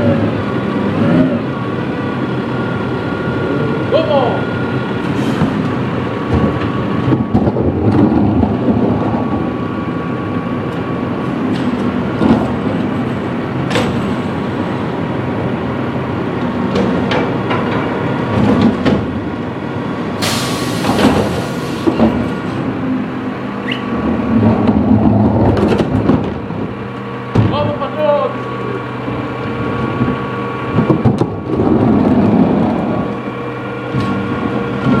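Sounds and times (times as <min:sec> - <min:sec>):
diesel engine running: 0:00.0 - 0:35.0
sharp clanks and knocks: 0:13.6 - 0:14.4, 0:16.7 - 0:19.2, 0:27.3 - 0:27.9
loud hiss: 0:20.2 - 0:21.8.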